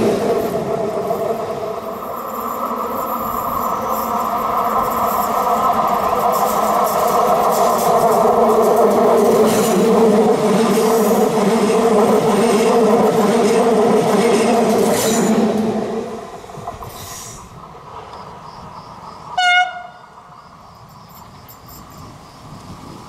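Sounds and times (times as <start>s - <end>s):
wheels clicking over rail joints: 0.0s - 18.7s, 20.8s - 23.0s
train passing at speed: 0.0s - 23.0s
train horn blast: 19.4s - 20.1s.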